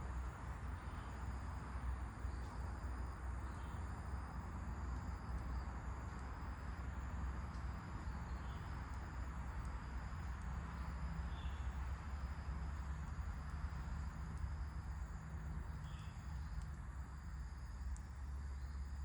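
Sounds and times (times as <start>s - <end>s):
insects droning: 0.0s - 19.0s
wind with low rumble: 0.0s - 19.0s
faint bird chirps: 10.8s - 11.7s, 15.7s - 16.7s.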